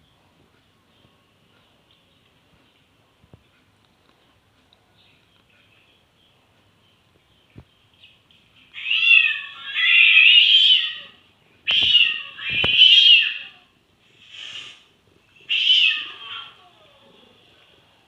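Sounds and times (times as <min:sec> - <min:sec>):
cat meowing: 0:08.8 - 0:13.6, 0:15.5 - 0:16.9.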